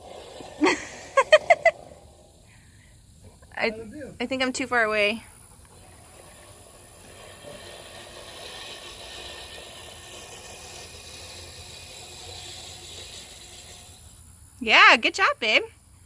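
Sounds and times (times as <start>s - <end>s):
distant lawn mower running: 0.0s - 14.2s.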